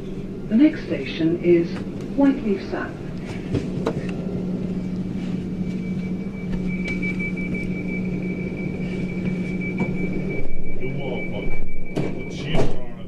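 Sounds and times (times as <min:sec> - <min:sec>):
thin high whine: 0:00.0 - 0:13.0
train interior low hum: 0:00.0 - 0:13.0.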